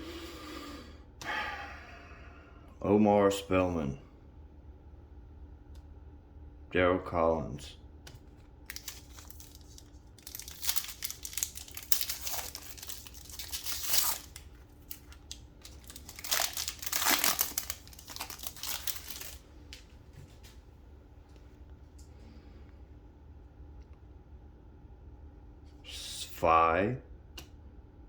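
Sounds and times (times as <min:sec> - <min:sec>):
plastic wrapper crinkling and tearing: 0:08.3 - 0:19.8.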